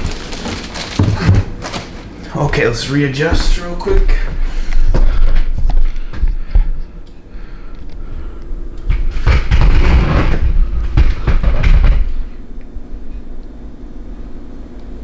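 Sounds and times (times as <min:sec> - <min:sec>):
cardboard and foam rustling: 0:00.0 - 0:06.0, 0:08.9 - 0:12.4
heavy thumps and rumbling: 0:03.2 - 0:06.9, 0:08.0 - 0:13.0.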